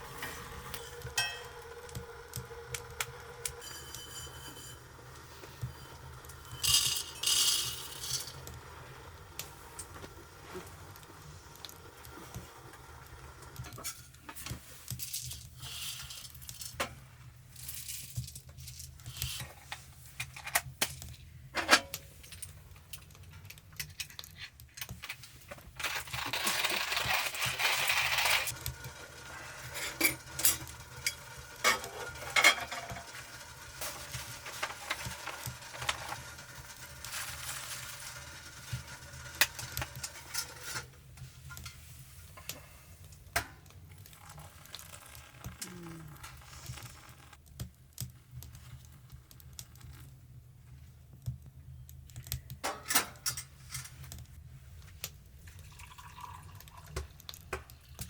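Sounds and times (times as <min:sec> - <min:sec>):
food sizzling in a pan: 0:00.0 - 0:14.0, 0:27.0 - 0:40.9
metal utensils scraping pots: 0:00.1 - 0:02.0, 0:03.4 - 0:08.4, 0:25.8 - 0:40.9.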